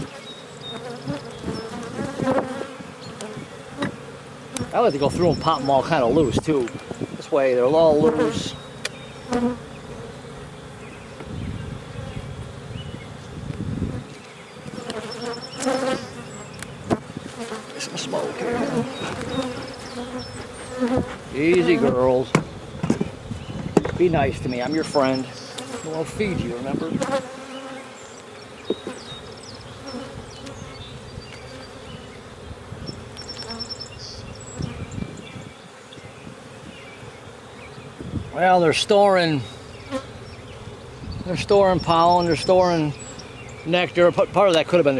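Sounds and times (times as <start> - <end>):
bees buzzing: 0.0 - 44.9
light knocks: 22.3 - 24.0.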